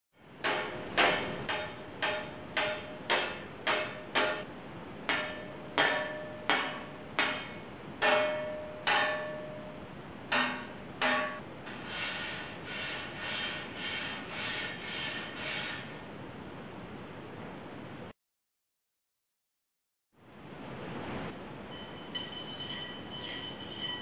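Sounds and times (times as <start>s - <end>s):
sharp ringing strikes: 5.1s - 11.4s, 21.7s - 24.0s.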